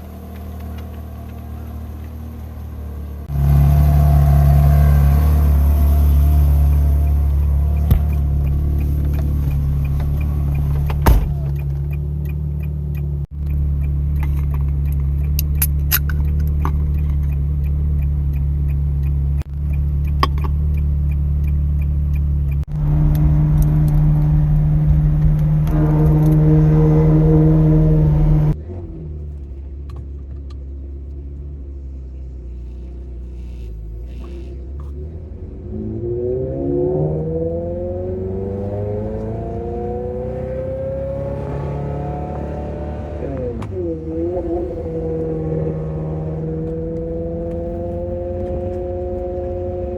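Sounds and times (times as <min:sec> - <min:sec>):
engine revving: 0:00.0 - 0:29.4, 0:31.8 - 0:49.9
car engine idling: 0:00.0 - 0:35.7, 0:37.2 - 0:49.9.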